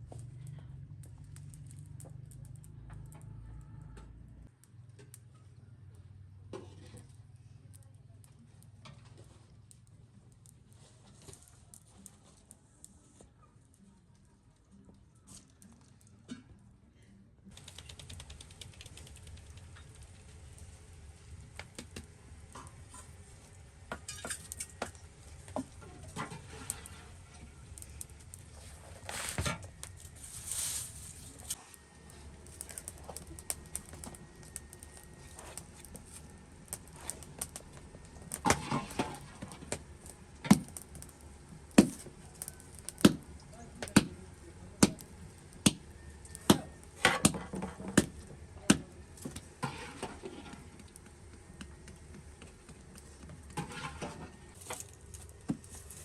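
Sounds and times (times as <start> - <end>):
rustling: 25.0 - 56.0.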